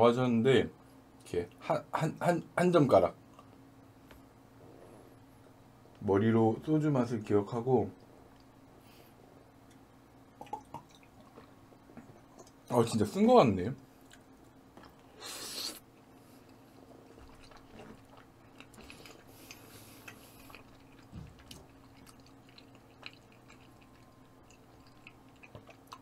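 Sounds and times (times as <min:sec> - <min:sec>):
person quietly chewing: 0:08.0 - 0:09.8, 0:10.4 - 0:12.7, 0:13.9 - 0:26.0.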